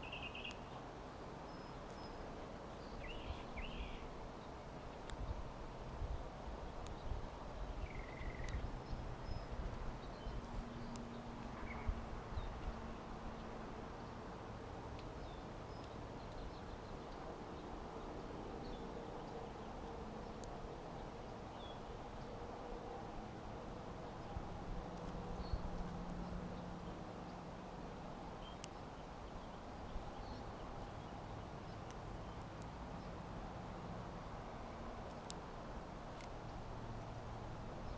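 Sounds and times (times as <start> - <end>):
songbirds chirping: 0.0 - 37.9
wind rumble on microphone: 3.0 - 14.3.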